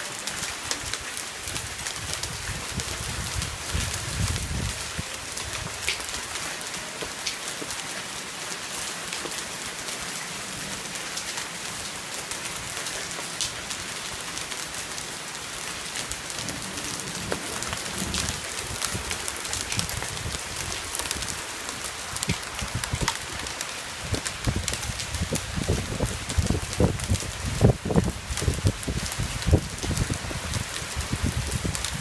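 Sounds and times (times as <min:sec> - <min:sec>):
heavy rain on trees and deck: 0:00.0 - 0:32.0.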